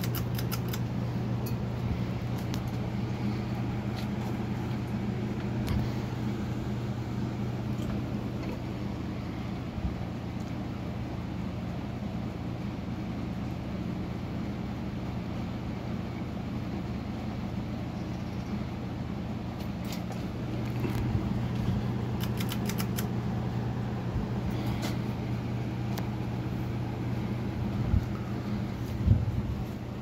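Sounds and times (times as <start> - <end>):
ceiling fan humming: 0.0 - 30.0.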